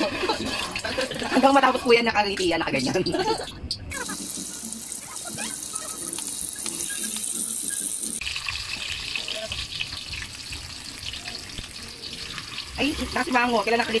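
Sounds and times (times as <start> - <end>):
burger patty sizzling in oil: 3.9 - 14.0.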